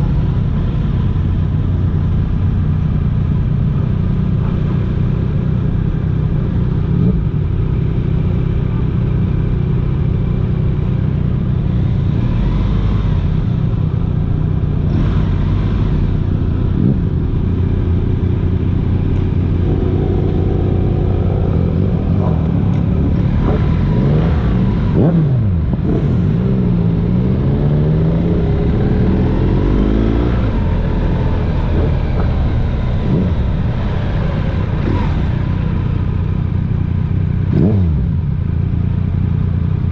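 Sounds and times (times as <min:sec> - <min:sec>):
motorcycle engine rumble: 0:00.0 - 0:39.9
road and wind noise: 0:00.0 - 0:39.9
passing vehicle engines: 0:10.2 - 0:39.9.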